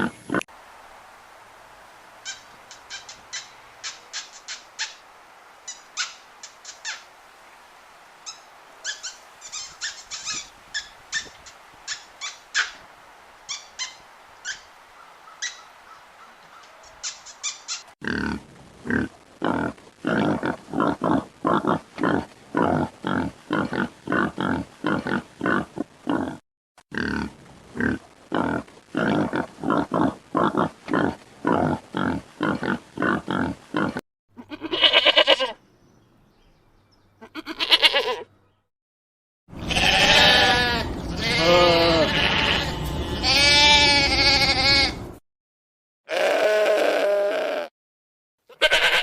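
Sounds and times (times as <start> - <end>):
animal grunting: 18.0 - 26.4, 27.0 - 34.0
long wavering bleats: 31.5 - 35.6, 37.2 - 38.3, 39.6 - 45.1, 46.1 - 47.7, 48.5 - 49.0.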